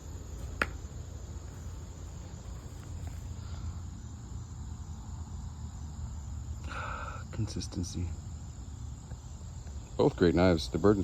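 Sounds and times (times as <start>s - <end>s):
low outdoor rumble: 0.0s - 6.6s
insect chorus: 0.0s - 11.0s.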